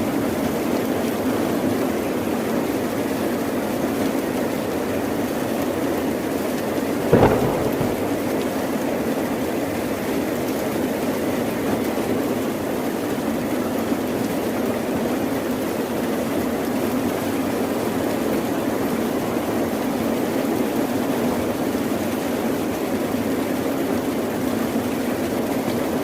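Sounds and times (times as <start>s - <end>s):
heavy rain: 7.1s - 8.9s
sharp crack of thunder: 7.1s - 8.9s.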